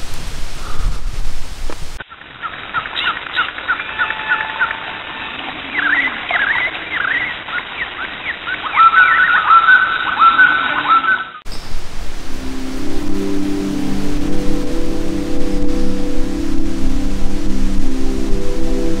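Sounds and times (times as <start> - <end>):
steady hiss: 0.0 - 9.5, 11.5 - 19.0
birds chirping and whistling: 2.4 - 4.9, 5.6 - 11.8.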